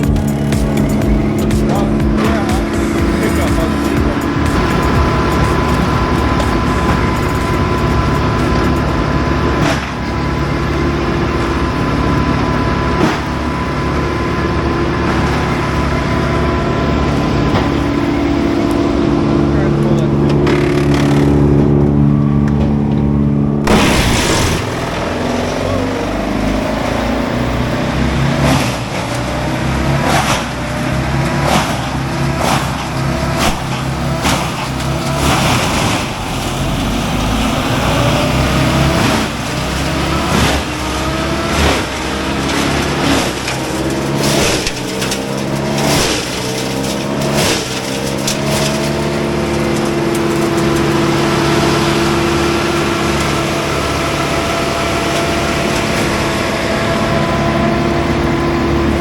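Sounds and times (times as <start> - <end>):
sharp cracks and knocks: 0.0 - 10.2, 12.9 - 13.5, 22.5 - 27.2, 28.2 - 57.3
heavy machine engine revving: 0.0 - 59.0.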